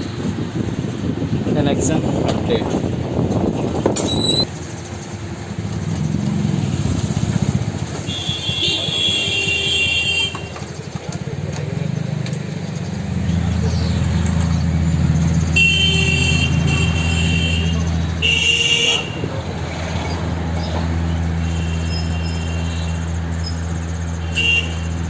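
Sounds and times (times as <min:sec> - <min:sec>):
vehicle engine running: 0:10.6 - 0:25.0.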